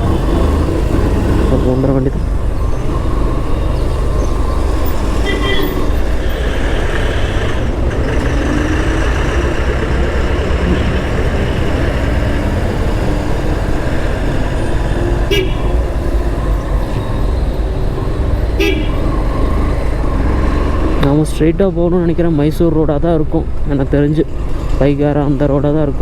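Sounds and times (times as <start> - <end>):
motorcycle engine and road noise: 0.0 - 26.0
vehicle horn toot: 5.1 - 6.0, 15.2 - 16.0, 18.5 - 19.2.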